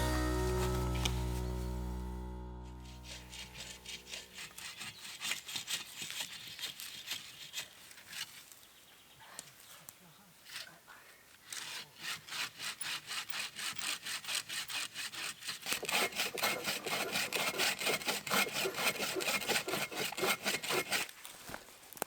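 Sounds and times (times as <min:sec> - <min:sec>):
hand saw cutting wood: 0:02.8 - 0:08.6, 0:11.4 - 0:21.3.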